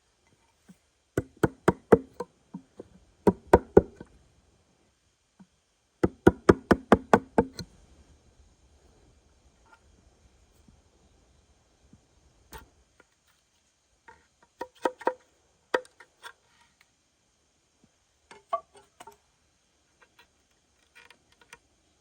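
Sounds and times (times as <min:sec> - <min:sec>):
sharp knocks: 0:01.2 - 0:02.2, 0:03.3 - 0:04.0.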